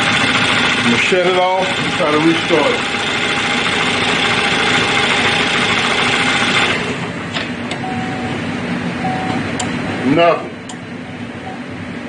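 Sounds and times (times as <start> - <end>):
car engine idling: 0.0 - 7.8
short beep: 9.0 - 9.4.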